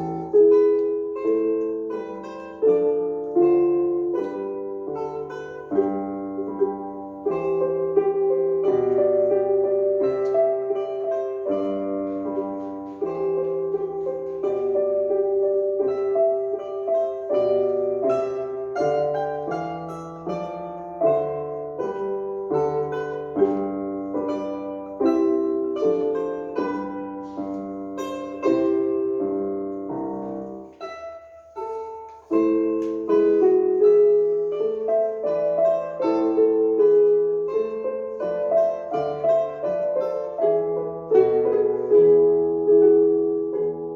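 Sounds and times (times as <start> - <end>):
piano melody over chords: 32.4 - 43.9.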